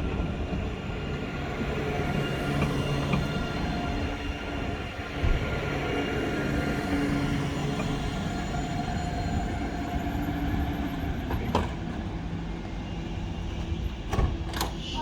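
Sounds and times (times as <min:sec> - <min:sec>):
tram rumbling: 0:00.0 - 0:15.0.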